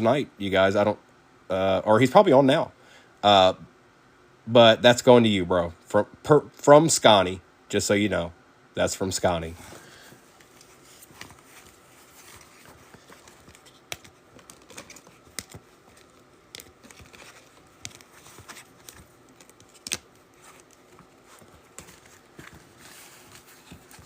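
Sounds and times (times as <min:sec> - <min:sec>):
soft rustling: 0:09.6 - 0:24.0.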